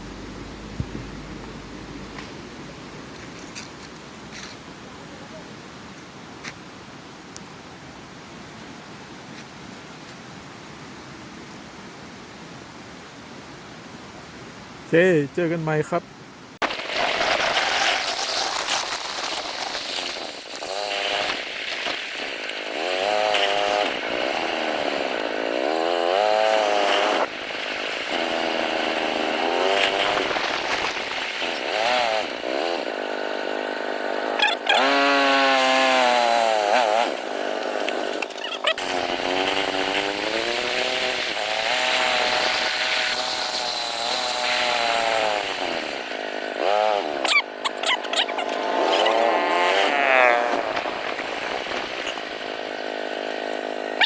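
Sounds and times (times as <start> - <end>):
small engine revving: 16.7 - 54.0.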